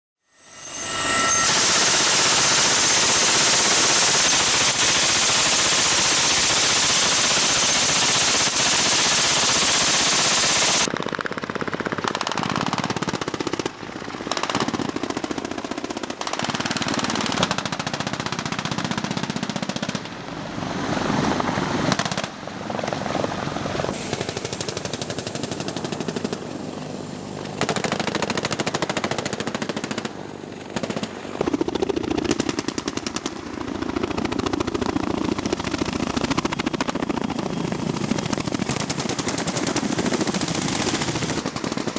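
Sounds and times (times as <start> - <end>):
wind and rotor wash: 0.4 - 11.4, 20.0 - 25.5, 30.2 - 41.9
heavy machine gun bursts: 1.5 - 10.9.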